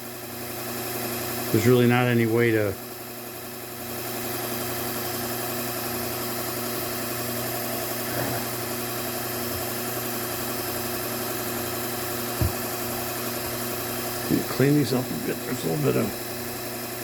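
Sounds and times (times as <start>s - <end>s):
belt sharpener motor hum: 0.0s - 17.0s
short knock: 12.4s - 12.6s.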